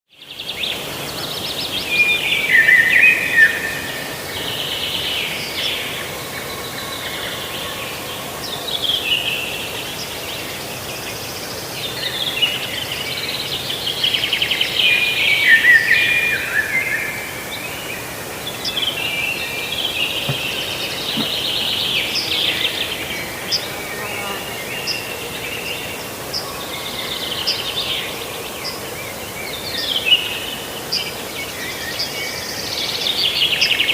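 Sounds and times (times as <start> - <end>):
songbirds singing: 0.2 - 33.9
steady background hiss: 0.2 - 33.9.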